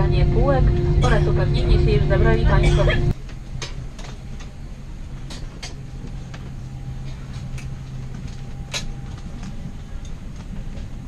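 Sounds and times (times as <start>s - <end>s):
low drone: 0.0s - 11.0s
vehicle cabin hum: 0.0s - 11.0s.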